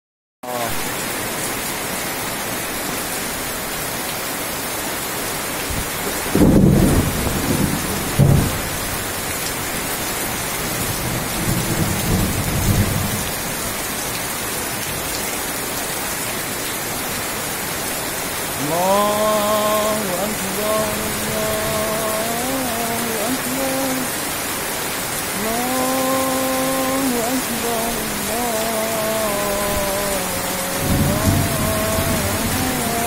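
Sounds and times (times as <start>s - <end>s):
heavy rain falling: 0.4s - 33.0s
thunder rumbling: 6.2s - 9.0s, 30.8s - 33.0s.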